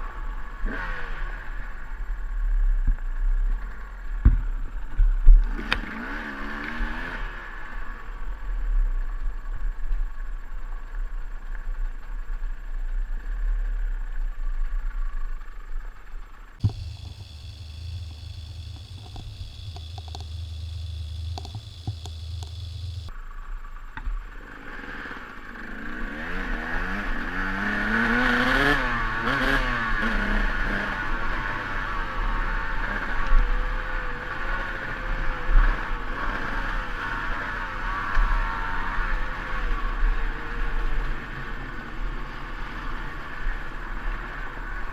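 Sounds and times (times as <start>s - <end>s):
dirt bike engine running: 16.6s - 23.1s.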